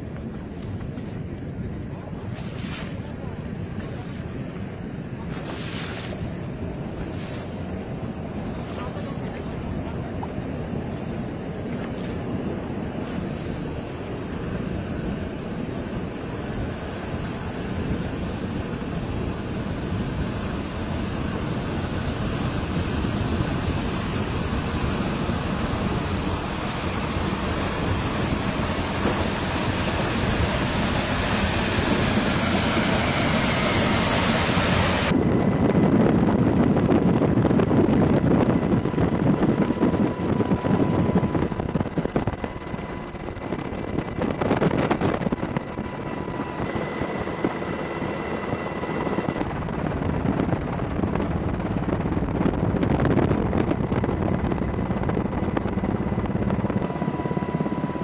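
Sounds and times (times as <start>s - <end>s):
powerboat engine running loud: 0.0s - 14.4s, 15.0s - 58.0s.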